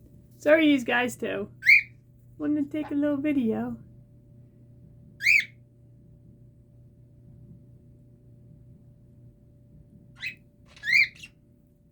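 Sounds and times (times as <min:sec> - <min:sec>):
faint steady hum: 0:00.0 - 0:11.9
parrot chirping: 0:01.6 - 0:02.0, 0:05.2 - 0:05.6, 0:10.1 - 0:11.4.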